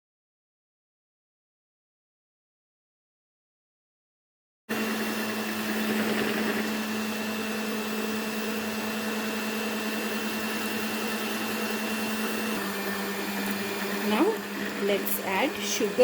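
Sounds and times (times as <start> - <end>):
electric hand mixer running: 4.7 - 16.0.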